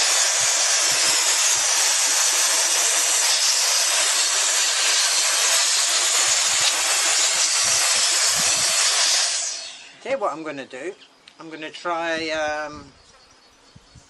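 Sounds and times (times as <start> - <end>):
electric air duster running: 0.0 - 10.0.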